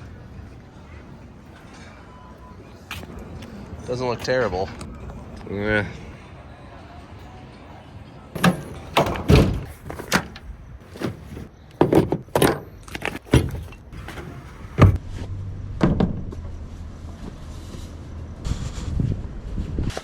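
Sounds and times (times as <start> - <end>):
gear knocking and rattling: 8.4 - 15.0.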